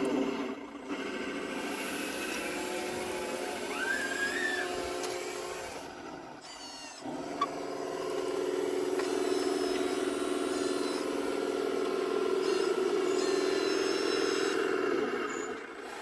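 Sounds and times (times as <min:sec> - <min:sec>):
model motors humming: 0:00.0 - 0:16.0
short rising squeal: 0:03.6 - 0:04.9.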